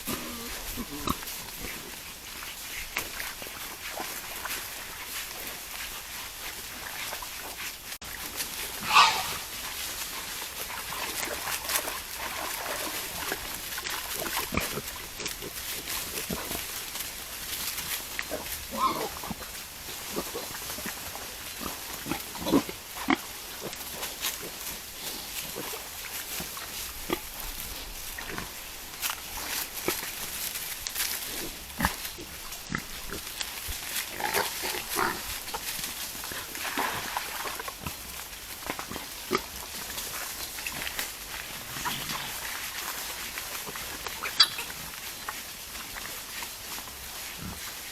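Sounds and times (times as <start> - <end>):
wild boar call: 0.0 - 1.9, 8.6 - 9.9, 18.2 - 19.4, 44.1 - 44.9
wild boars grunting: 0.0 - 2.1, 8.6 - 9.9
rustling: 0.0 - 47.9.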